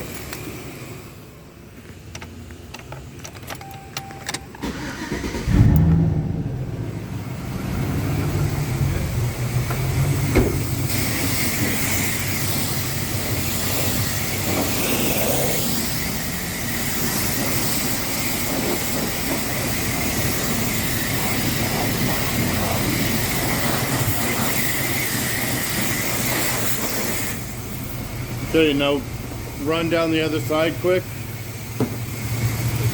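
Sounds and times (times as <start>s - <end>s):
truck engine idling: 0.0s - 32.9s
high-pressure water spraying: 8.3s - 32.9s.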